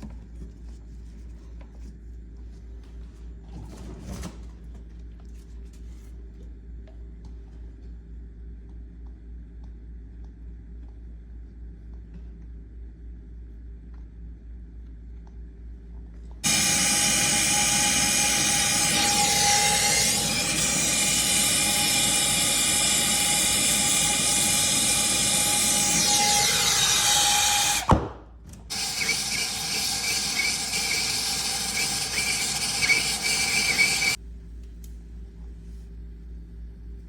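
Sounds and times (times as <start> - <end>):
small electric motor whining: 16.4 - 27.9, 28.7 - 34.2.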